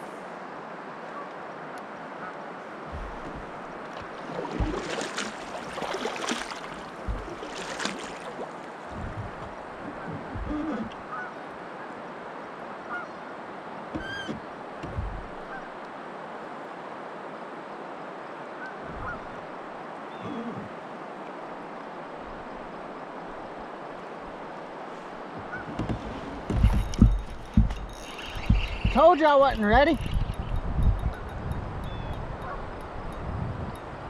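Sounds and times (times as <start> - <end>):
knocks: 13.9 - 15.5, 25.6 - 29.0.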